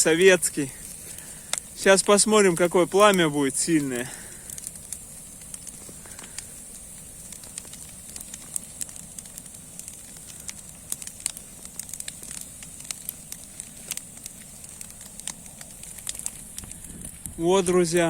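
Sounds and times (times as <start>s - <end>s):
bonfire crackling and popping: 0.0s - 18.0s
fire hissing: 0.0s - 18.0s.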